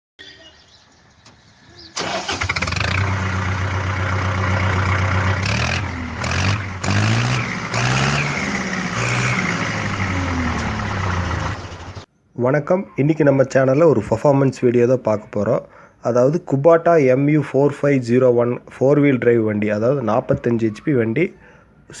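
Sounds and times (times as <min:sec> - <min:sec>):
tractor diesel engine revving: 0:01.9 - 0:12.1.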